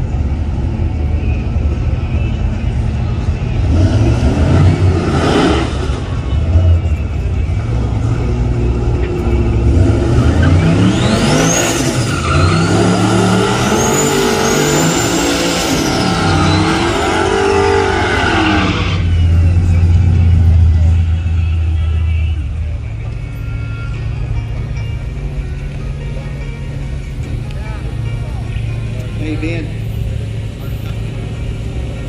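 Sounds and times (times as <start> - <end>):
car engine revving: 3.5 - 23.3
high whine: 5.7 - 32.0.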